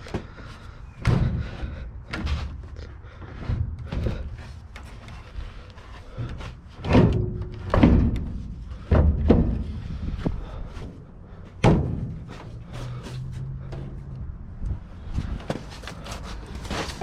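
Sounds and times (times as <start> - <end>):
heavy thunks and knocks: 1.0 - 2.6, 6.1 - 10.7, 11.5 - 12.6.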